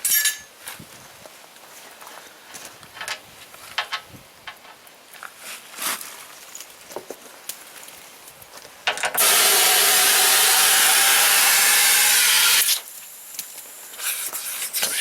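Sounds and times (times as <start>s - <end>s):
compressed air rushing from hose: 14.0s - 15.0s.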